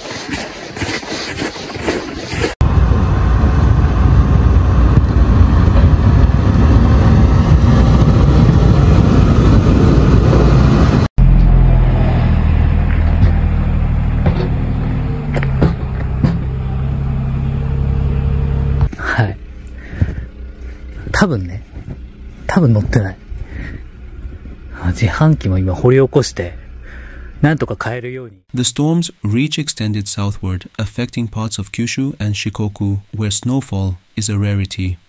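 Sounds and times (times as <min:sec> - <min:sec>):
vehicle engine rumbling: 0:02.3 - 0:28.5.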